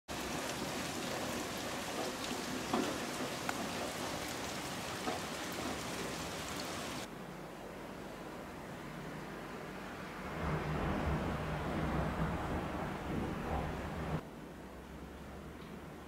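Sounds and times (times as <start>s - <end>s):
rain drop ticks: 0.1s - 7.1s, 15.6s - 15.8s
rain hiss: 0.1s - 7.1s.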